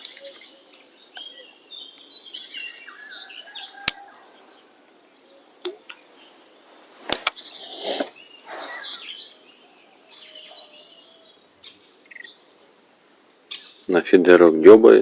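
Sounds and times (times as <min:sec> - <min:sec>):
birds chirping: 0:00.0 - 0:15.0
rustling: 0:06.0 - 0:09.0
sharp clicks: 0:07.1 - 0:07.4.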